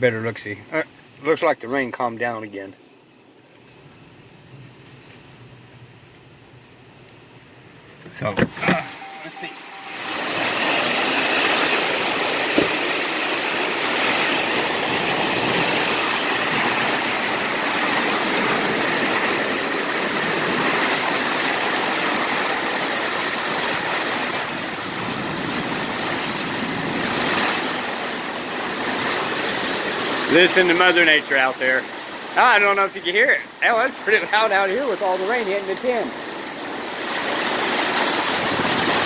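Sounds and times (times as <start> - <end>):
heavy rain on tin awning: 8.5 - 39.0.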